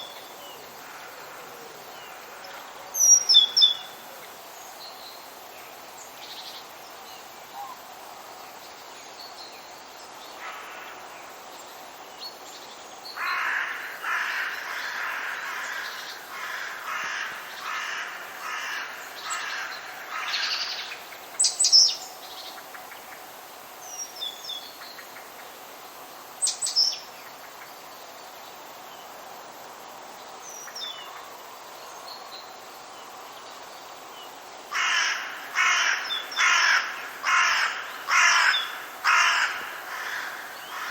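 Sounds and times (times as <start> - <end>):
faint steady hiss: 0.0 - 40.9
bird harsh repeated calls: 34.8 - 40.9.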